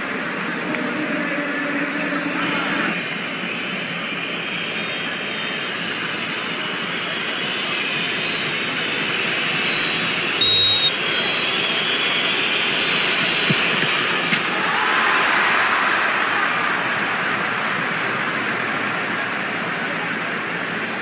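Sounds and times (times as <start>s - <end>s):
stadium crowd din: 0.0s - 21.0s
referee's whistle blast: 9.4s - 13.5s.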